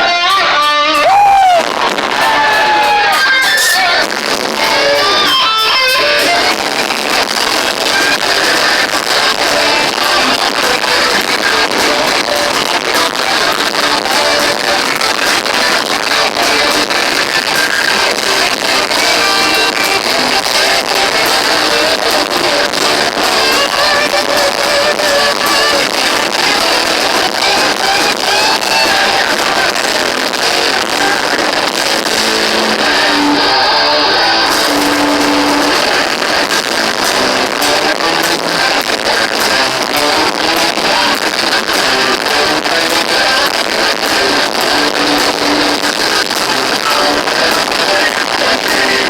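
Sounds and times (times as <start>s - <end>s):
distorted electric guitars: 0.0s - 49.0s
drum hits: 34.5s - 38.4s.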